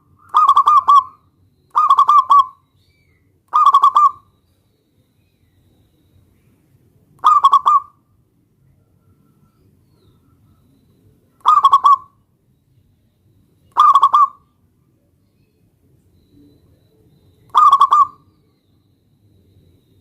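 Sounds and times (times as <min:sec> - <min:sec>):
dove cooing: 0:00.0 - 0:02.6, 0:03.5 - 0:04.3, 0:07.2 - 0:08.0, 0:11.3 - 0:12.2, 0:13.7 - 0:14.4, 0:16.4 - 0:18.5.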